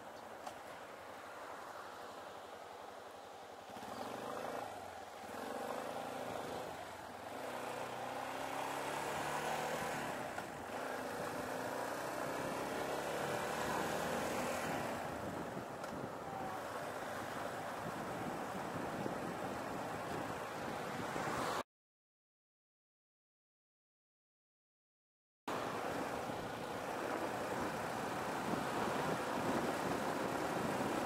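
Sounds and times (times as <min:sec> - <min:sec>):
wind and road noise: 0:00.0 - 0:21.6, 0:25.5 - 0:31.0
motorcycle engine accelerating: 0:03.7 - 0:15.4.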